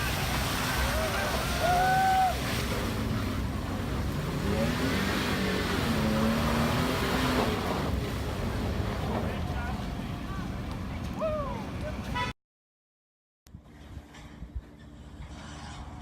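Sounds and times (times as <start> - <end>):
crowd noise: 0.0 - 2.6
small motorbike engines revving: 4.1 - 8.5.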